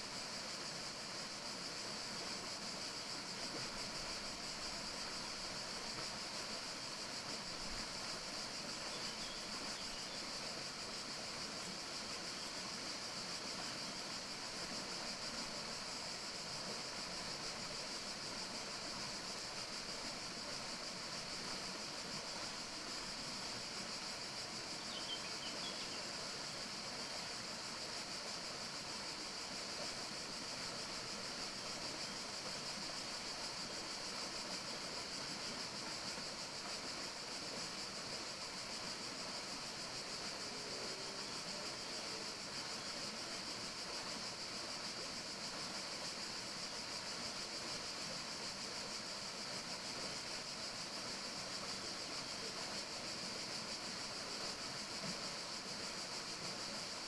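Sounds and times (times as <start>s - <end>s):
forest ambience hiss: 0.0s - 57.0s
faint bird chirp: 8.9s - 10.2s, 24.9s - 26.1s.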